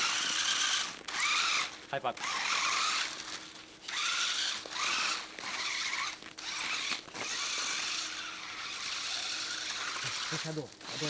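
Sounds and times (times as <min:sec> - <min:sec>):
toy car drivetrain whirring: 0:00.0 - 0:11.0
tyres churning through snow: 0:00.0 - 0:11.0.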